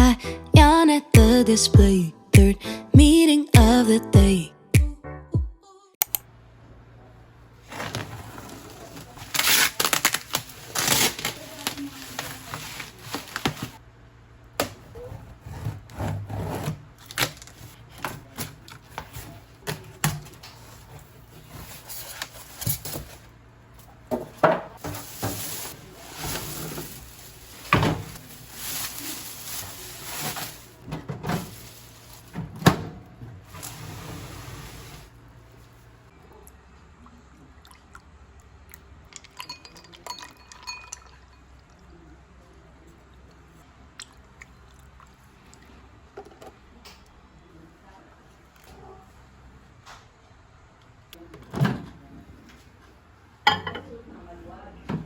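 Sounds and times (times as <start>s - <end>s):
rustling: 24.8s - 32.5s.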